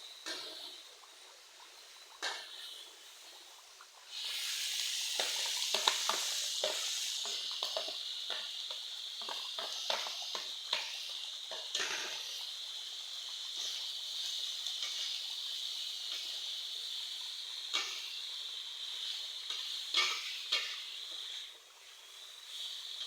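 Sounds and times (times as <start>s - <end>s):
tofu sizzling in hot oil: 0.0s - 23.0s.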